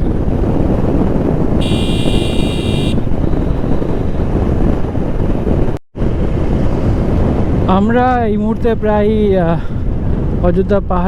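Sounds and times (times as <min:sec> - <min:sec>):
wind buffeting microphone: 0:00.0 - 0:11.0
high steady tone: 0:01.6 - 0:03.0.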